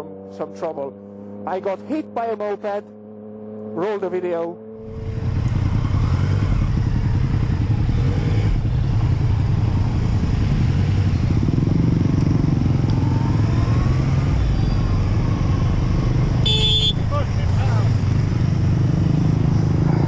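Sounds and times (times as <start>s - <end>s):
wind and road noise: 0.0s - 20.0s
motorcycle engine running: 4.6s - 20.0s.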